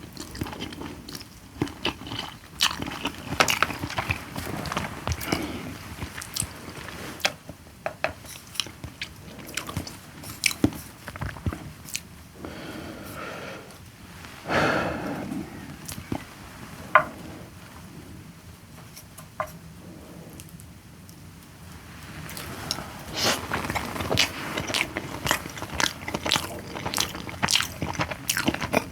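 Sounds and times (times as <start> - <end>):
person chewing and biting: 0.2 - 6.5, 22.3 - 28.9.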